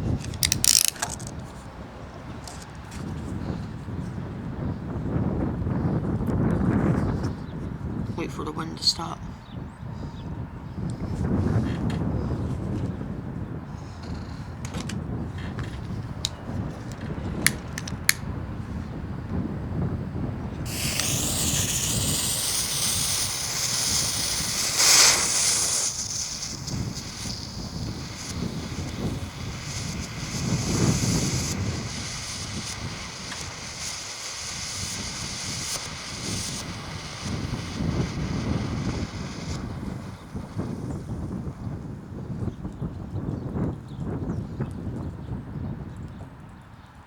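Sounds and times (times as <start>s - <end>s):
smoke ball fuse hissing: 0.0s - 1.3s, 20.7s - 41.9s
wind buffeting microphone: 0.0s - 47.0s
sharp clicks: 0.1s - 1.3s, 17.5s - 18.2s, 20.7s - 41.1s.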